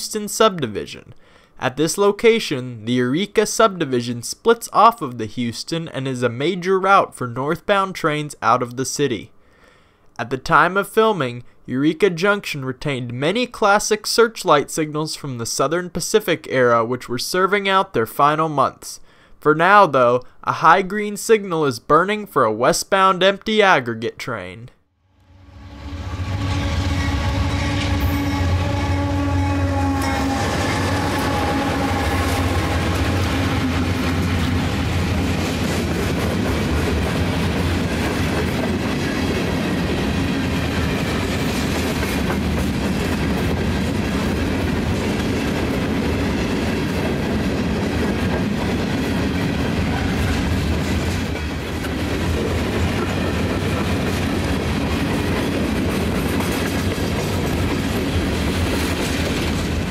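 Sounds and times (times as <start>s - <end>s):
train horn: 25.3s - 35.2s, 49.8s - 50.6s
locomotive engine rumble: 25.3s - 38.6s
hopper cars clattering over rails: 30.1s - 59.9s.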